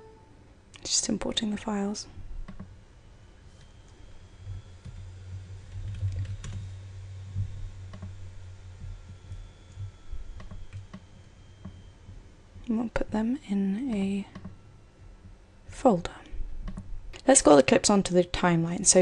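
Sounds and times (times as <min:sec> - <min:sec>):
low hum: 0:00.0 - 0:19.0
keyboard and mouse clicks: 0:02.5 - 0:02.7, 0:16.6 - 0:16.9.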